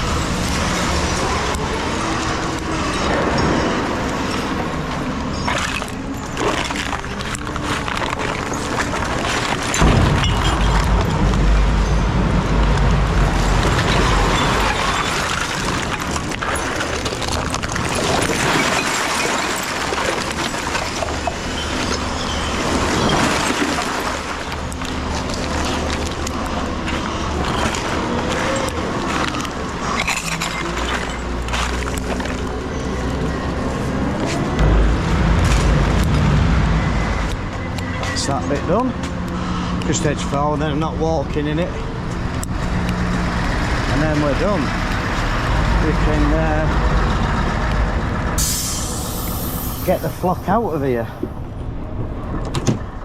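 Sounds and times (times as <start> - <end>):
lorry diesel engine running: 7.6 - 18.1, 32.2 - 53.0
deep rumble of load tipping: 9.2 - 18.2, 34.6 - 53.0.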